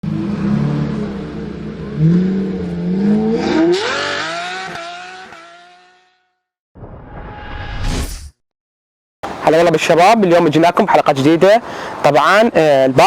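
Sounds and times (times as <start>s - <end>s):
car engine revving: 0.0s - 6.2s.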